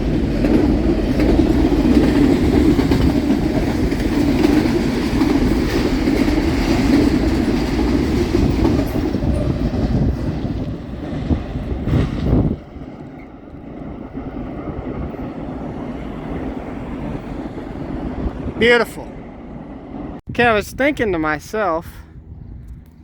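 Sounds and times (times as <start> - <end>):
clickety-clack over rail joints: 0.0 - 18.4
train wheels rumbling on rails: 0.0 - 20.2.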